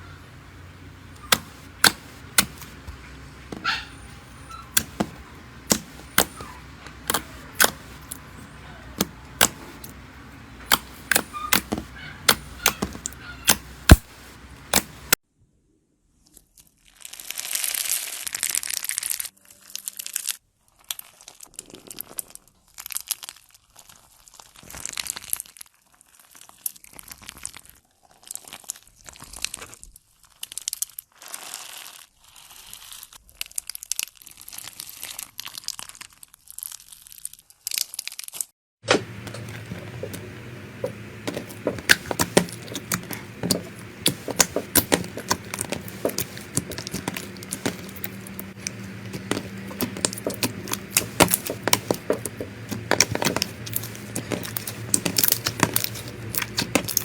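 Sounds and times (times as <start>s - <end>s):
sharp pops and clicks: 1.1s - 3.8s, 4.7s - 15.2s, 38.9s - 57.0s
slime squeezed by hand crackling: 1.1s - 15.2s, 34.4s - 57.0s
steady low hum: 38.9s - 57.0s.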